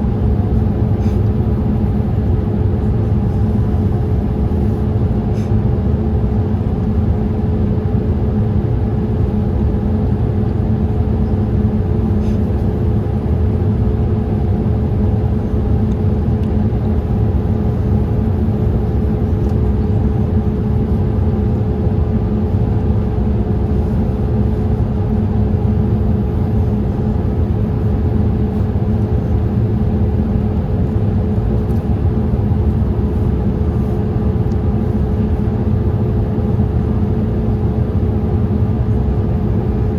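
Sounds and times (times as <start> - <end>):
airplane cabin engine rumble: 0.0 - 39.9
faint steady hum: 0.0 - 39.9.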